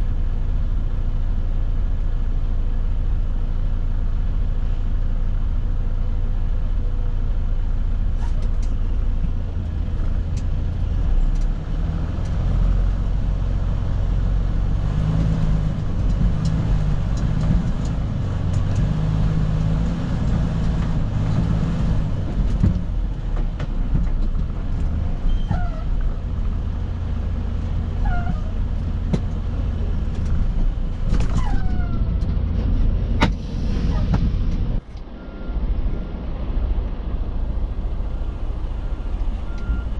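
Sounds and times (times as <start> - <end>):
diesel engine idling: 0.0 - 39.9
short falling squeaks: 25.2 - 26.0, 28.0 - 28.6, 31.1 - 32.3.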